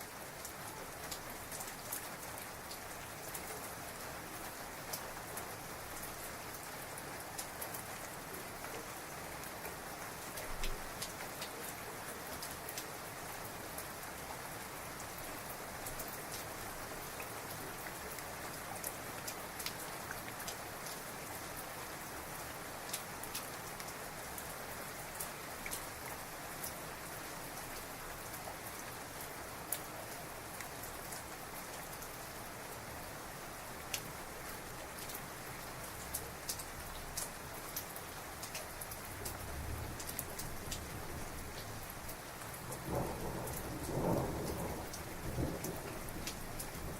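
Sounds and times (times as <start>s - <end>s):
heavy rain falling: 0.1s - 46.9s
raindrops tapping close by: 9.6s - 11.8s, 15.8s - 21.0s, 22.8s - 26.8s, 33.8s - 46.9s.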